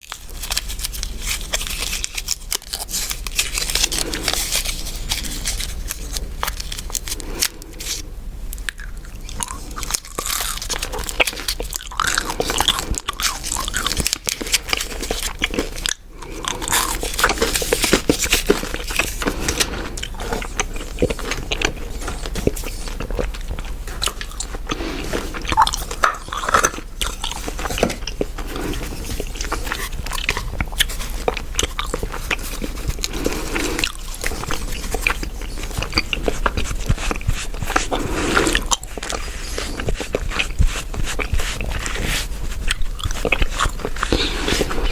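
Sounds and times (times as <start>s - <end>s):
gum chewing clicks and smacks: 8.6s - 44.3s.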